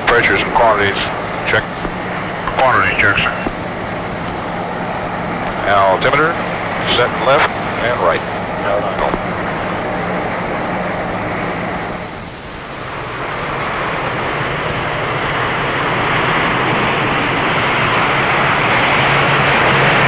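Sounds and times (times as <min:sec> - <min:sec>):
propeller drone: 0:00.0 - 0:20.0
rushing noise: 0:00.0 - 0:20.0.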